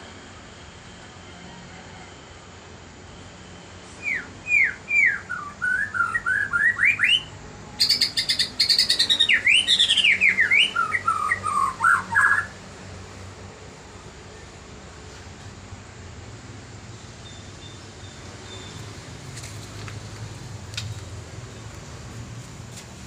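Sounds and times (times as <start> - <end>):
songbird singing whistled notes: 3.8 - 12.6, 16.9 - 18.9.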